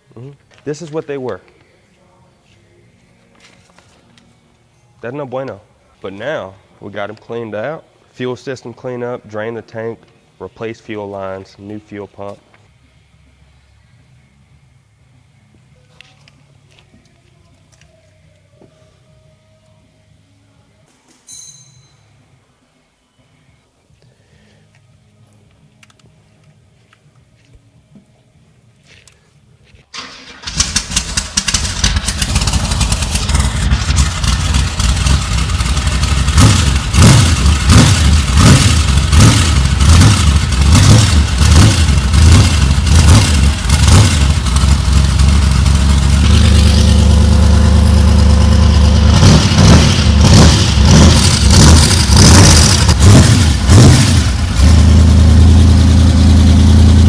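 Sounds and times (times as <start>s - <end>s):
engine cranking and starting: 29.9s - 57.0s
engine revving: 30.5s - 57.0s.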